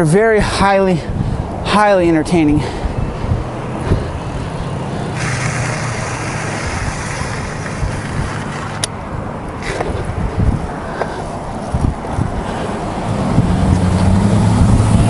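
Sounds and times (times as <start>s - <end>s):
road noise hiss: 0.0s - 15.0s
vehicle engine running: 3.2s - 9.2s.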